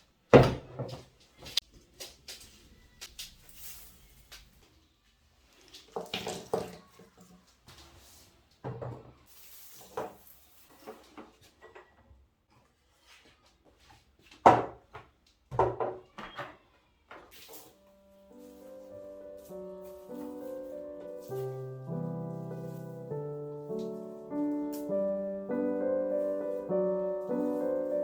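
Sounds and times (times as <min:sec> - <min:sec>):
objects knocking on hard surface: 0:14.4 - 0:16.5.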